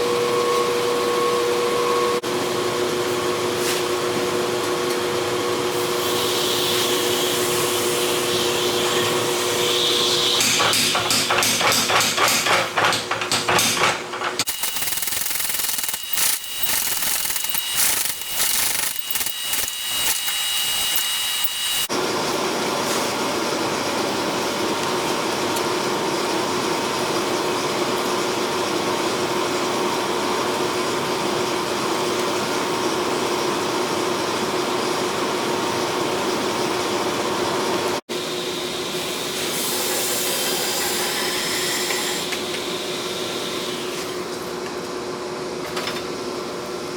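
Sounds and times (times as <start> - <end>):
power tool running: 5.0 - 22.0
metal strikes: 10.4 - 14.5.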